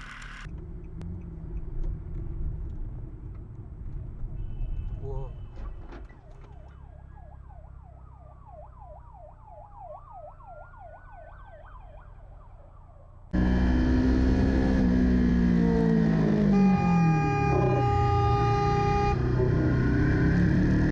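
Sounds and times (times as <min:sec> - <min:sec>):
vehicle and road noise: 0:00.0 - 0:20.9
siren wailing tone: 0:06.6 - 0:20.9
siren fast yelp: 0:16.4 - 0:20.2.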